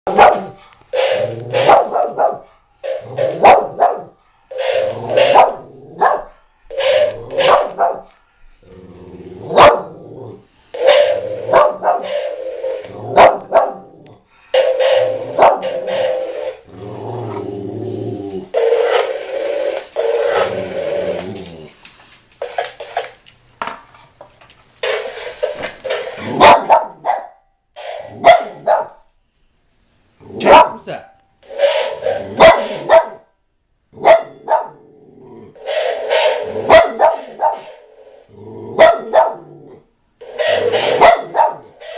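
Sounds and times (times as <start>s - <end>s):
dog barking: 0.1s - 0.6s, 1.5s - 2.5s, 3.2s - 6.3s, 7.3s - 8.1s, 9.5s - 10.0s, 11.0s - 12.2s, 13.1s - 13.9s, 15.2s - 15.8s, 26.3s - 27.4s, 28.2s - 29.0s, 30.4s - 30.9s, 32.2s - 33.3s, 34.0s - 34.8s, 36.6s - 37.8s, 38.8s - 39.5s, 40.4s - 41.8s.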